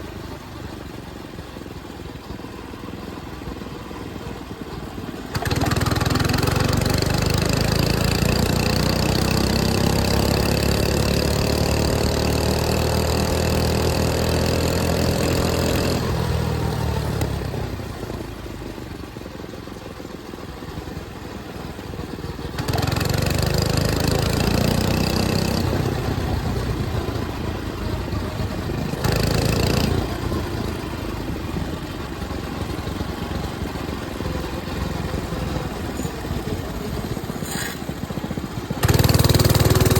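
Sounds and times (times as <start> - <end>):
mini bike engine revving: 5.2 - 18.4, 22.3 - 39.9.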